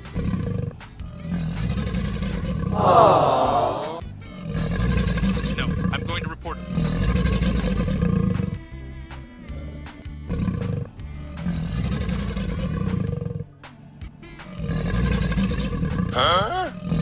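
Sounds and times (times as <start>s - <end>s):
background music: 0.0s - 17.0s
monster roaring: 1.3s - 8.4s.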